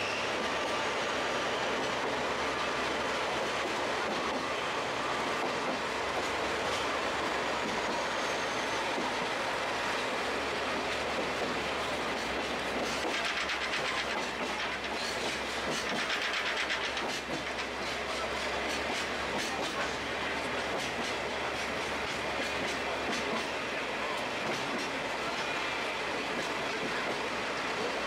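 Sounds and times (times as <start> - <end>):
train running along track: 0.0 - 28.0.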